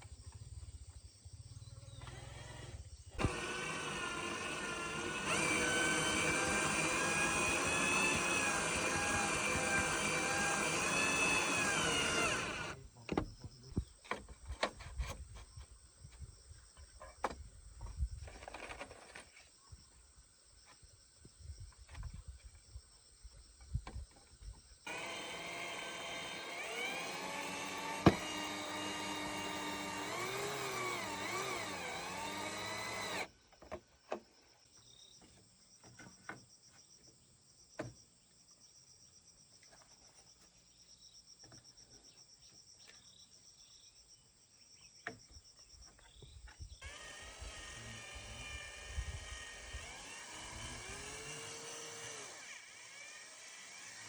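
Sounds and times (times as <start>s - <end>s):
insects: 0.0s - 54.0s.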